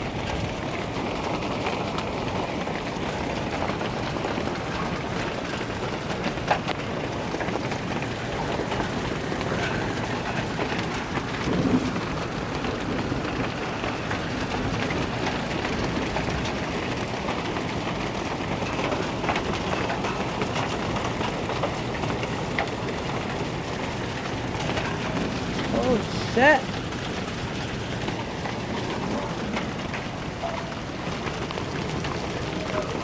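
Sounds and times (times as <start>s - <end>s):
hailstones clicking: 0.0s - 33.0s
heavy rain hissing: 22.8s - 33.0s.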